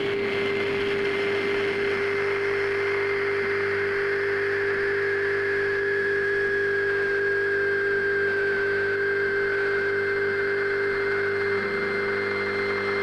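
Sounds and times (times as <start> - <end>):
high whine: 0.0 - 13.0
transformer hum: 10.6 - 13.0.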